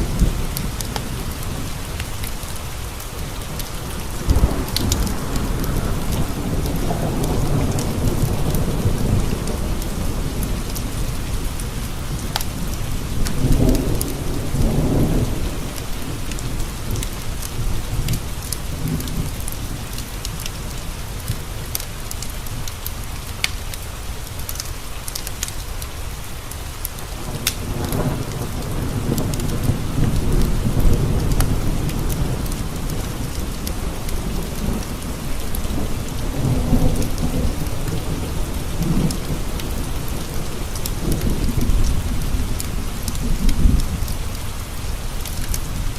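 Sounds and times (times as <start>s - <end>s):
wood fire crackling and popping: 0.0s - 8.6s, 12.2s - 14.7s, 15.7s - 25.6s, 26.8s - 30.2s
low rolling thunder: 0.0s - 21.7s, 27.2s - 45.9s
rain pattering against windows: 0.0s - 45.9s.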